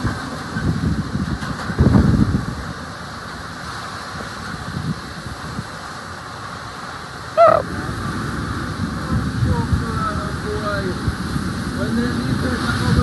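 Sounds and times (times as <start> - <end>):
wind buffeting microphone: 0.0 - 6.7, 7.3 - 13.0
brief pitched call: 7.4 - 7.6.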